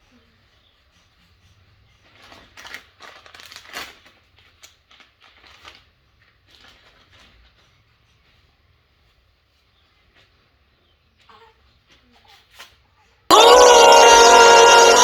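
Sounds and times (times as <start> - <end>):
crinkling and rustling handling noise: 2.5 - 7.6.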